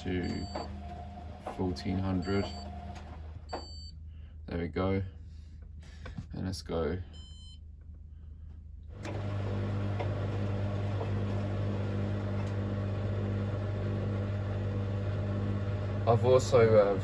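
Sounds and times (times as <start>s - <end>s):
drain pump humming: 0.0s - 3.9s, 8.9s - 17.0s.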